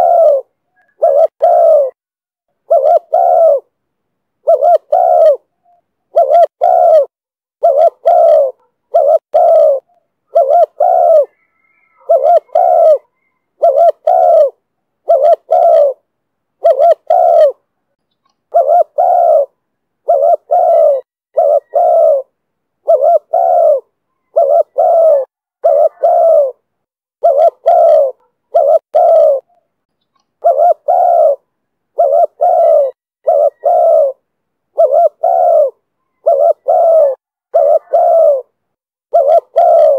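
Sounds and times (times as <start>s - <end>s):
dove cooing: 0.0s - 2.0s, 2.6s - 3.7s, 4.4s - 17.7s, 18.5s - 29.7s, 30.4s - 39.9s.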